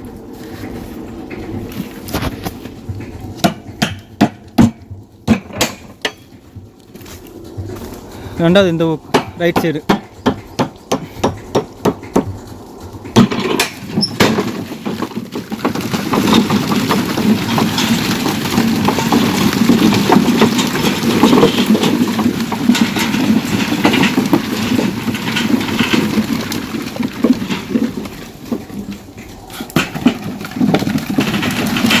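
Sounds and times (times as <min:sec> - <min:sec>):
tractor diesel engine running: 0:00.0 - 0:32.0
knocks: 0:09.1 - 0:12.5.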